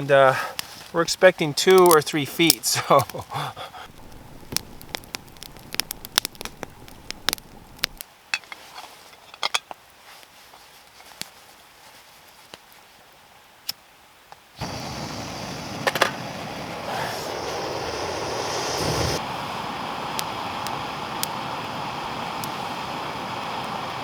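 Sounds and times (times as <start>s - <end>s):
campfire crackling: 0.0s - 8.1s, 14.6s - 24.0s
creek water flowing: 3.3s - 8.0s, 14.6s - 24.0s.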